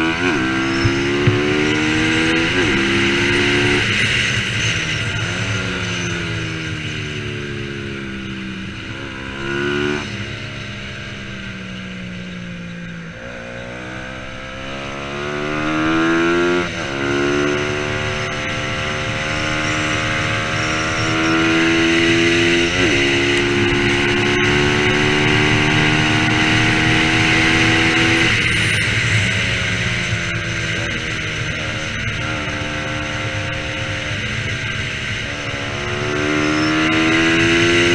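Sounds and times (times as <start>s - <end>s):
motorcycle engine racing: 0.0s - 37.9s.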